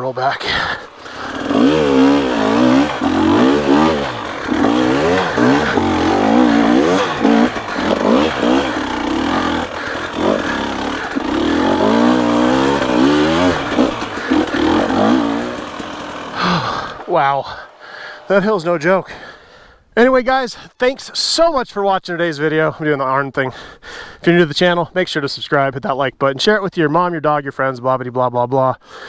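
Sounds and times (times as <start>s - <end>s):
dirt bike engine revving: 0.0s - 19.3s.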